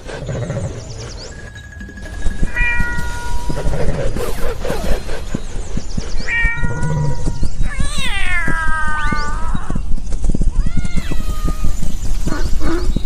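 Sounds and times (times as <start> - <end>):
patter of low thumps: 1.3 - 13.0
cat meowing: 2.5 - 3.7, 6.3 - 9.9, 10.5 - 12.4.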